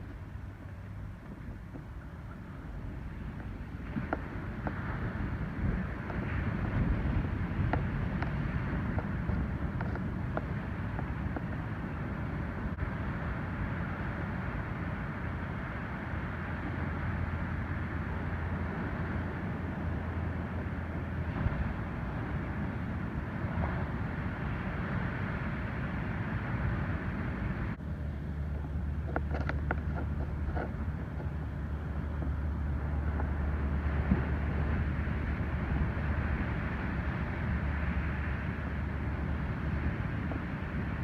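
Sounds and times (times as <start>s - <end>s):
wind rumbling on microphone: 0.0s - 41.0s
ocean surf breaking: 3.8s - 27.8s, 31.9s - 41.0s.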